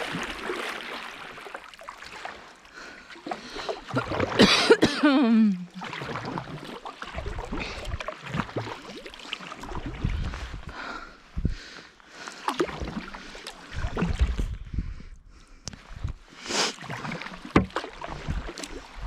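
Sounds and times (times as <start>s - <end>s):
paddle splashing in water: 0.0s - 4.8s, 5.7s - 14.6s, 15.8s - 19.0s
wind rumble on microphone: 7.2s - 8.0s, 9.6s - 11.7s, 13.7s - 16.3s, 17.6s - 19.0s.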